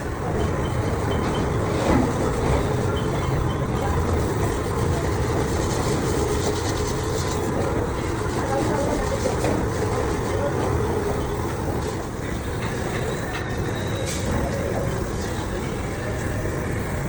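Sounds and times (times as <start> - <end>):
machinery rattling: 0.0 - 17.0.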